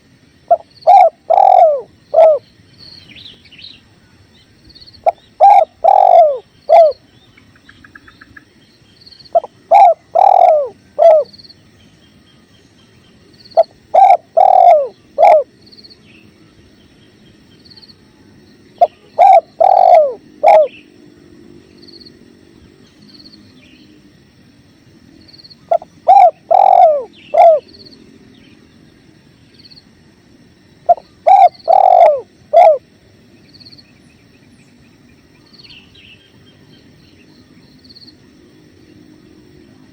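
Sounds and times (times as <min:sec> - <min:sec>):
dove cooing: 0:00.5 - 0:02.5, 0:05.0 - 0:07.0, 0:09.3 - 0:11.4, 0:13.6 - 0:15.6, 0:18.8 - 0:20.9, 0:25.6 - 0:27.9, 0:30.9 - 0:32.9.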